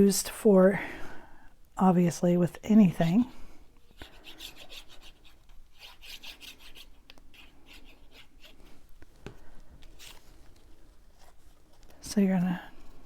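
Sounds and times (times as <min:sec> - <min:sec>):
paper rubbing and sliding: 0:09.8 - 0:11.8.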